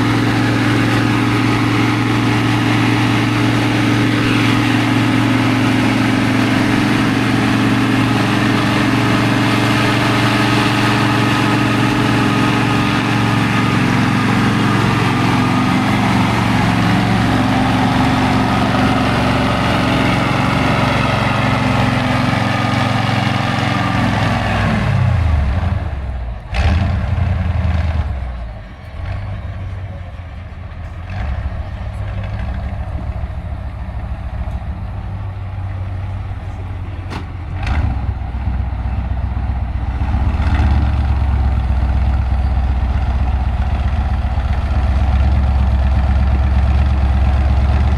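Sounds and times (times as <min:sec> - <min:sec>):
diesel truck engine revving: 0:00.0 - 0:47.9.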